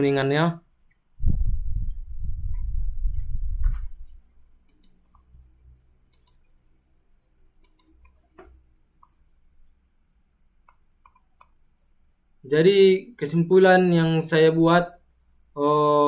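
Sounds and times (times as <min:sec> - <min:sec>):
low hum: 0:01.2 - 0:04.2
faint clicks: 0:04.7 - 0:05.3, 0:06.1 - 0:06.6, 0:07.6 - 0:09.8, 0:10.6 - 0:11.9.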